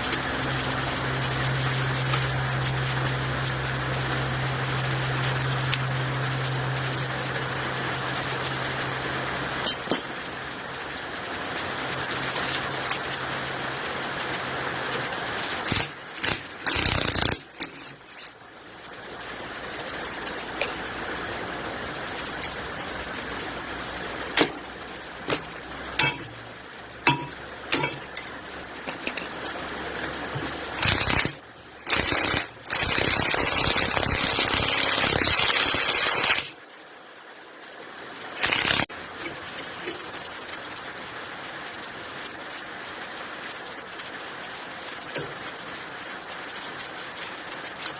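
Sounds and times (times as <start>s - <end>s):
tools and engine parts clinking: 26.0s - 26.3s, 27.1s - 28.3s.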